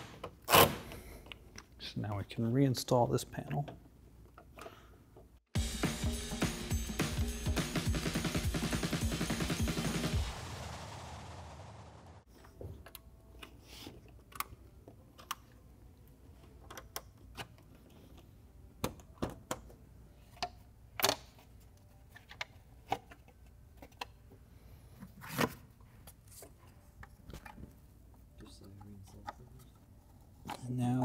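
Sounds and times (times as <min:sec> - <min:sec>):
music: 0:05.6 - 0:10.6.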